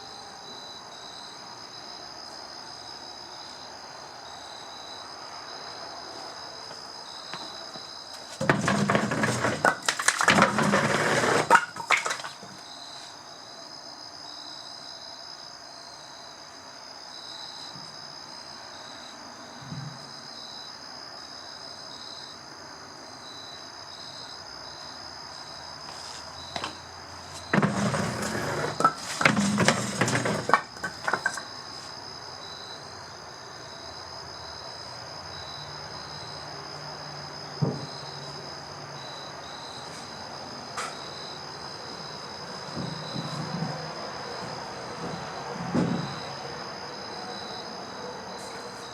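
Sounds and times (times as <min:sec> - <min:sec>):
crickets chirping: 0:00.0 - 0:48.9
firewood clattering down pipe: 0:08.2 - 0:12.6, 0:27.4 - 0:31.5.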